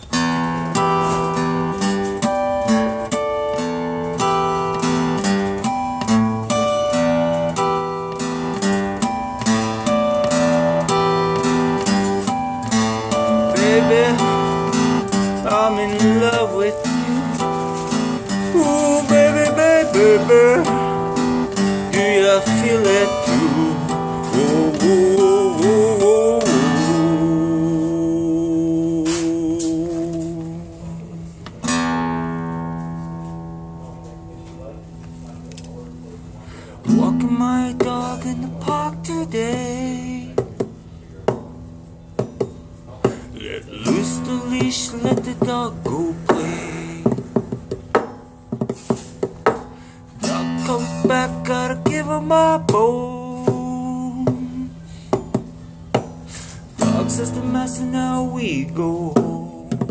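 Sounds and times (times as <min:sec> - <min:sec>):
acoustic guitar strumming: 0:00.0 - 0:59.9
person singing: 0:12.3 - 0:31.4, 0:43.0 - 0:47.4, 0:50.2 - 0:54.9, 0:56.8 - 0:59.9.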